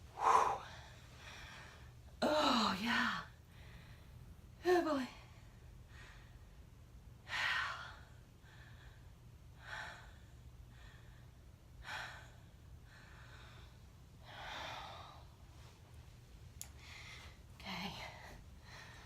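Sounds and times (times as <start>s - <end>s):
steady low hum: 0.0s - 19.0s
woman breathing hard: 0.1s - 2.0s, 3.4s - 4.4s, 7.3s - 15.7s, 16.7s - 19.0s.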